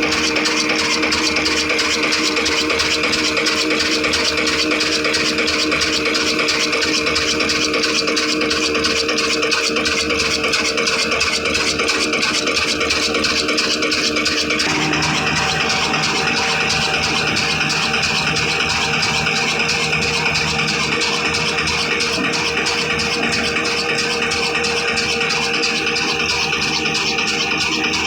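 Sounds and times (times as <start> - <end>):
stone flour mill running: 0.0 - 28.0
diesel engine rattling: 10.9 - 28.0.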